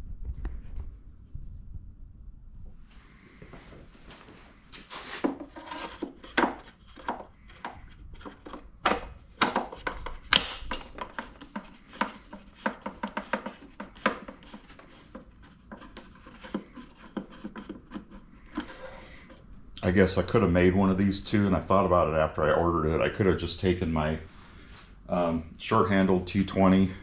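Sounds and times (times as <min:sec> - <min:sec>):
rubbing on workbench: 0:04.8 - 0:08.7, 0:10.8 - 0:19.5
tools clicking and tapping on workbench: 0:05.3 - 0:19.2.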